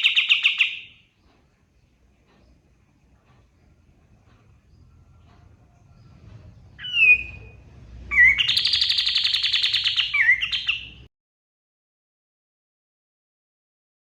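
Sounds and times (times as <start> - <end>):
bird singing whistles and runs: 8.1 - 10.9.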